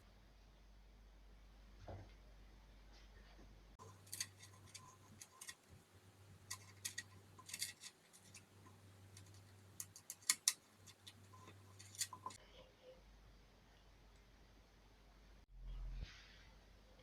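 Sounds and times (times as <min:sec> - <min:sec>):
faint low hum: 0:00.0 - 0:17.0
light clicks and taps of tools: 0:06.4 - 0:12.4.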